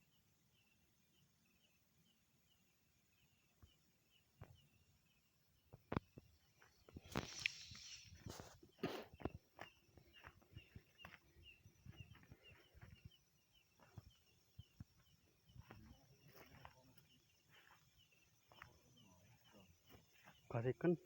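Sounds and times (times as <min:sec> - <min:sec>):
small bird chirping: 0:00.0 - 0:21.0.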